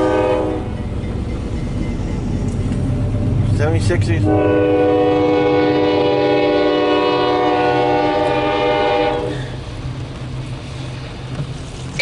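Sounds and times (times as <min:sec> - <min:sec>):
locomotive air horn chord: 0:00.0 - 0:00.7, 0:04.2 - 0:09.6
train rumbling: 0:00.0 - 0:12.0.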